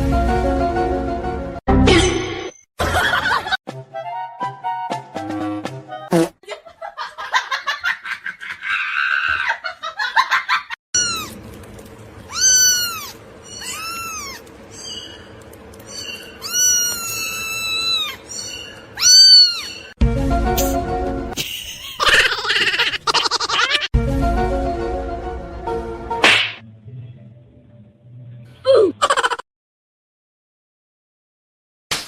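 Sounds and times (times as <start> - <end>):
cat meowing: 11.0 - 11.4, 12.3 - 14.5, 16.3 - 18.2, 19.0 - 19.9.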